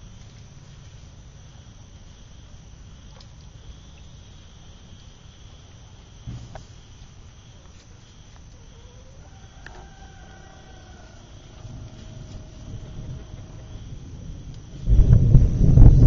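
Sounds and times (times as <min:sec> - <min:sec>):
insect chirring: 0:00.0 - 0:16.0
faint drawn-out call: 0:03.1 - 0:14.3
wind rumble on microphone: 0:10.2 - 0:16.0.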